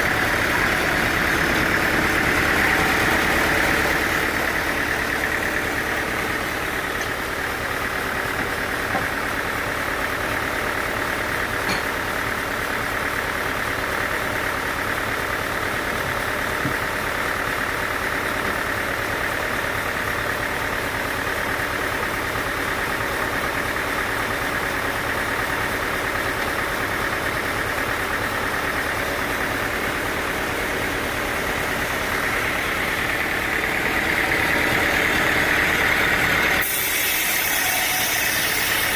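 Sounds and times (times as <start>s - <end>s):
sawmill whine: 0.0s - 38.9s
motor drone: 30.0s - 38.9s.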